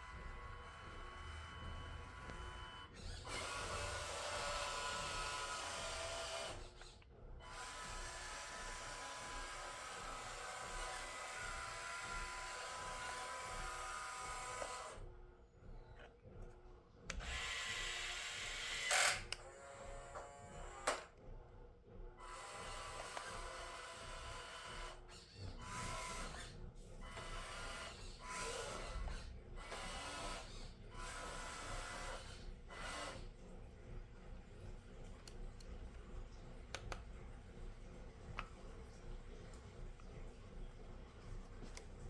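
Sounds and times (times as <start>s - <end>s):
electric motor and gears whirring: 0.0s - 15.1s, 15.7s - 21.3s, 22.2s - 33.4s.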